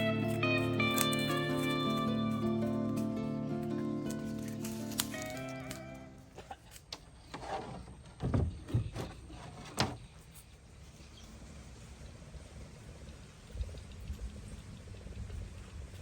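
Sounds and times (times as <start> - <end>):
parts knocking and clattering: 6.9 - 10.1.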